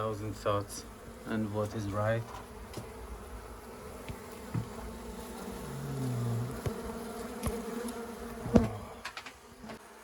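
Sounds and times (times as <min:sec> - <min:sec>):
bee flying close by: 0:00.0 - 0:10.0
honeybees buzzing: 0:00.0 - 0:10.0.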